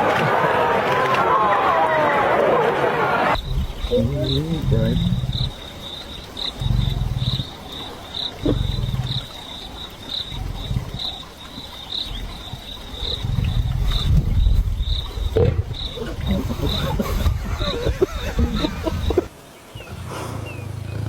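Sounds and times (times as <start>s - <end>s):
lion giving deep calls: 3.3s - 19.3s
insect chirping: 3.3s - 21.0s.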